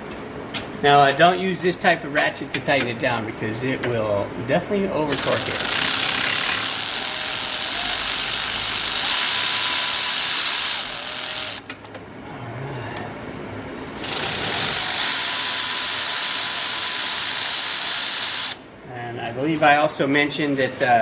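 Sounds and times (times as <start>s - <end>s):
ratchet clicks: 5.1s - 7.0s, 14.0s - 18.6s
electric ratchet running: 5.1s - 11.7s, 14.0s - 18.6s.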